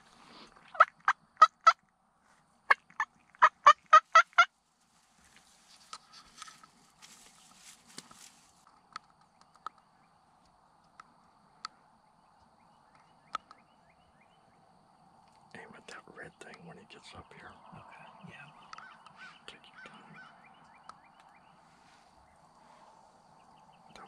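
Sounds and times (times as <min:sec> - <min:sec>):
turkey yelping: 0:02.7 - 0:04.5.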